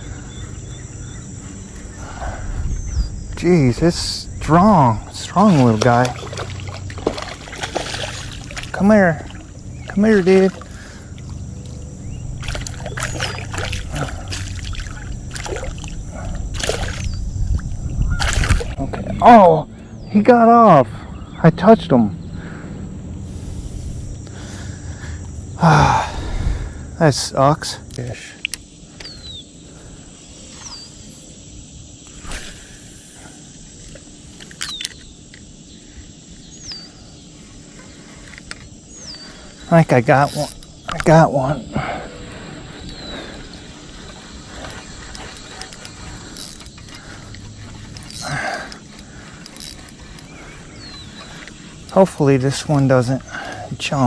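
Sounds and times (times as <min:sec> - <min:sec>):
insect drone: 0:00.0 - 0:54.0
fish splashing in water: 0:05.5 - 0:08.7, 0:12.4 - 0:17.1
sharp clicks: 0:27.8 - 0:29.2.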